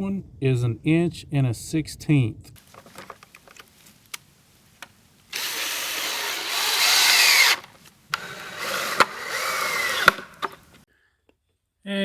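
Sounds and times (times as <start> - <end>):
power drill running: 2.6 - 10.8.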